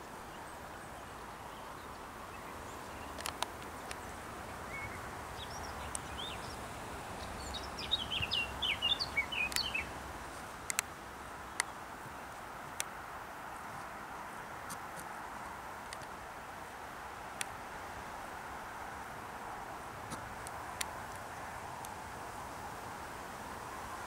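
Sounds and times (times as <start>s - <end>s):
outdoor background hiss: 0.0s - 24.0s
small bird chirping: 1.0s - 9.9s
sharp clicks: 3.2s - 4.0s.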